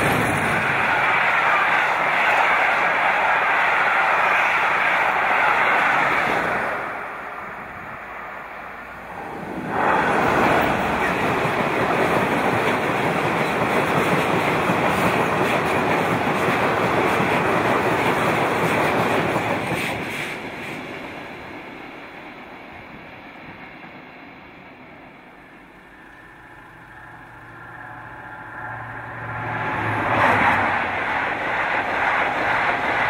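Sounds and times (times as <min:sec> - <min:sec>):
freight train wheels on rails: 0:00.0 - 0:33.0
passing train noise: 0:00.0 - 0:33.0.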